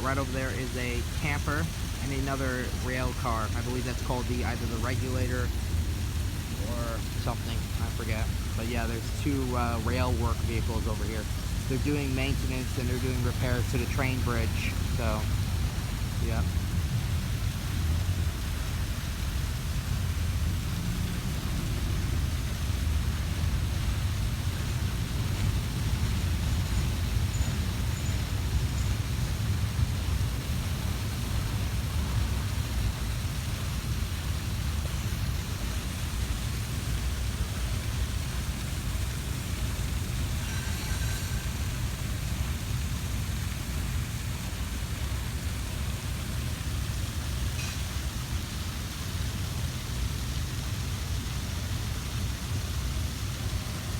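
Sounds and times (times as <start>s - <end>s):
train hiss: 0.0s - 53.9s
freight train rumbling past: 36.3s - 46.3s.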